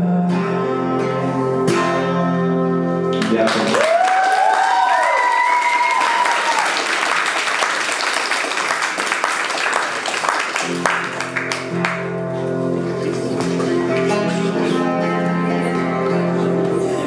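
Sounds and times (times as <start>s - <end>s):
acoustic guitar playing: 0.0s - 3.8s, 10.4s - 17.0s
audience applauding: 3.1s - 14.8s
shouted cheer: 3.4s - 7.6s.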